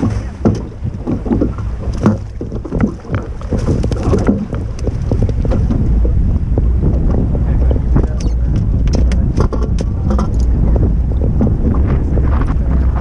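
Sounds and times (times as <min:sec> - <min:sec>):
water splashing against boat hull: 0:00.0 - 0:13.0
wind buffeting microphone: 0:00.0 - 0:13.0.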